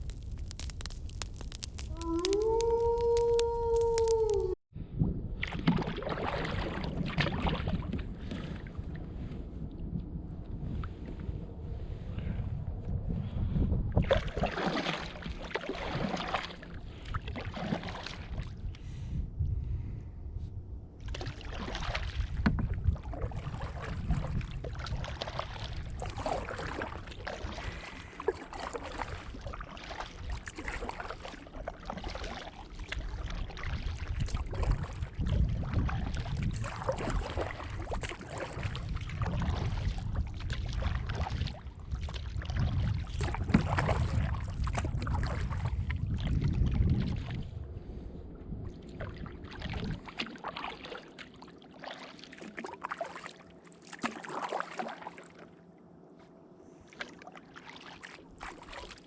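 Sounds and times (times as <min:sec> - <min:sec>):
gusty wind buffeting microphone: 0:00.0 - 0:05.7, 0:06.4 - 0:14.5, 0:18.2 - 0:26.8, 0:33.9 - 0:50.1
water splashing around canoe: 0:05.4 - 0:09.2, 0:14.0 - 0:19.0, 0:21.0 - 0:47.6, 0:48.6 - 0:55.6, 0:56.8 - 0:59.0.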